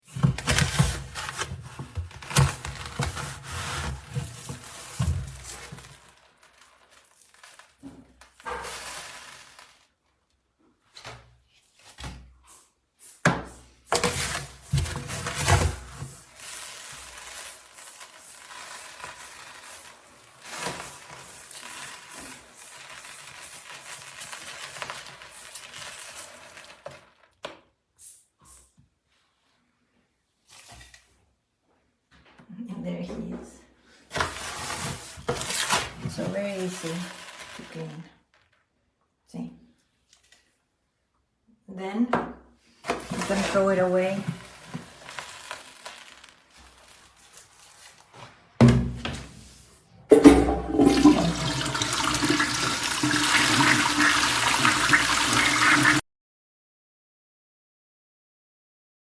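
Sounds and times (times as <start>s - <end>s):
cat litter rustling and scraping: 0.0s - 10.1s, 10.9s - 27.4s, 30.4s - 31.1s, 33.9s - 38.6s, 42.6s - 56.0s.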